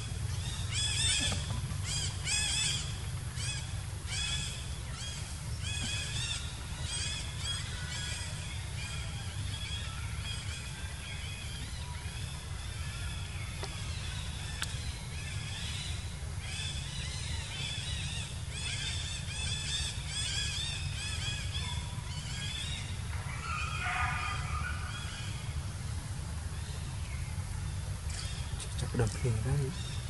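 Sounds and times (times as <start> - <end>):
lower bird calls: 0.0 - 30.0
steady low rumble: 0.0 - 30.0.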